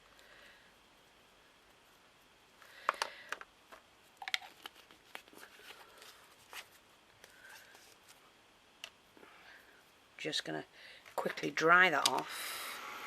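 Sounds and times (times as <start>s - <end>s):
faint rustling: 1.7s - 8.4s
small clicks and taps: 2.8s - 5.3s.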